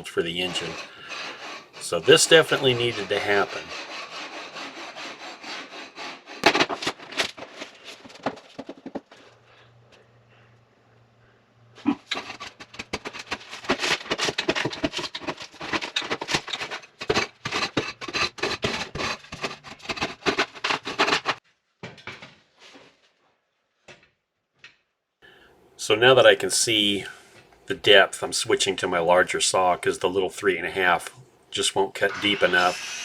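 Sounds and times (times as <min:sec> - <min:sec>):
rotten plywood crunching and scraping: 0:00.2 - 0:09.3, 0:11.9 - 0:21.4.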